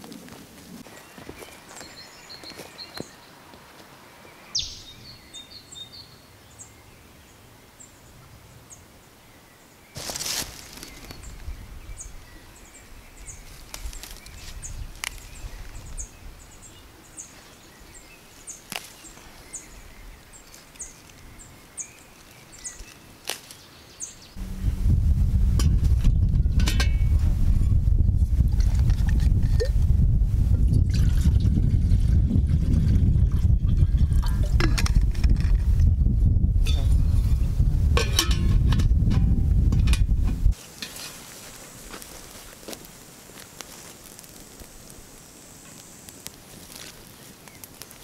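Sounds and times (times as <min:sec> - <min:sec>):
small bird chirping: 0:04.5 - 0:06.7
plants rustling: 0:10.0 - 0:11.5, 0:13.3 - 0:16.0, 0:17.3 - 0:23.9, 0:40.5 - 0:48.0
flower heads snapping: 0:13.6 - 0:15.3, 0:18.7 - 0:19.0, 0:22.8 - 0:23.6.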